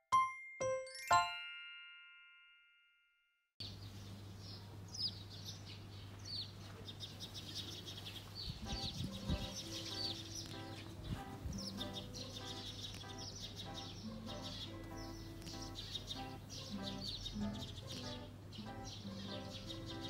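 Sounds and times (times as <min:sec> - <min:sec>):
soft music: 0:00.1 - 0:01.9, 0:08.6 - 0:20.0
chime ringing: 0:00.1 - 0:03.0
birds chirping: 0:03.6 - 0:20.0.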